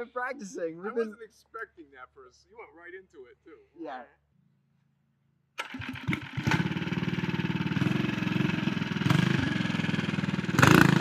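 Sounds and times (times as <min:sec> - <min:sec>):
small engine starting and idling: 0:05.6 - 0:11.0.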